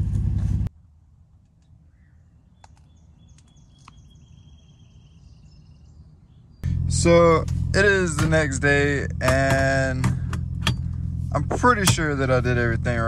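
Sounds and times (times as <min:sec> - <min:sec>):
low hum inside car: 0:00.0 - 0:00.7, 0:06.6 - 0:13.0
birds chirping: 0:01.5 - 0:13.0.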